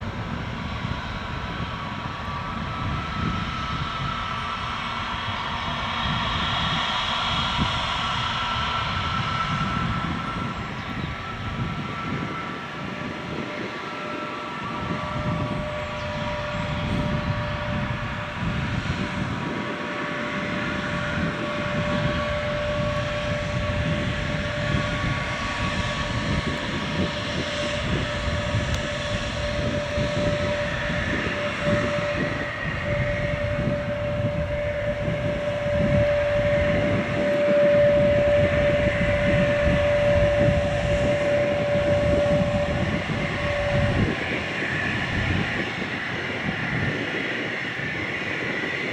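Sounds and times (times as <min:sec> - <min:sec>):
jet engines whining: 0:00.0 - 0:48.9.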